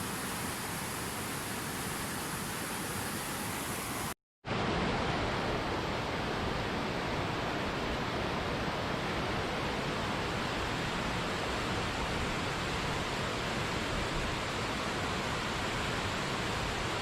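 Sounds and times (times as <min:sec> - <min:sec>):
waterfall rushing: 0:00.0 - 0:04.2.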